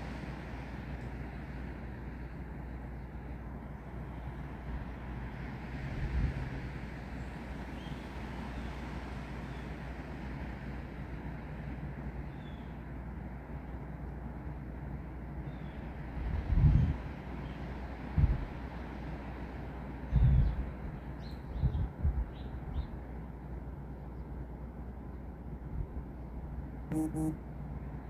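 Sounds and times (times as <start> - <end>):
wind with deep rumble: 0.0 - 13.2, 15.6 - 18.7, 20.0 - 23.1.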